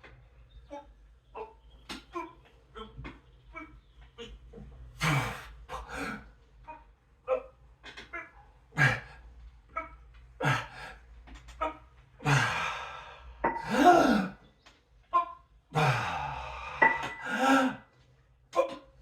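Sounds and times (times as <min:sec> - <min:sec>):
man breathing hard: 0:12.2 - 0:14.4, 0:15.8 - 0:17.9
man grunting: 0:13.6 - 0:14.4, 0:15.7 - 0:16.6, 0:17.2 - 0:17.8.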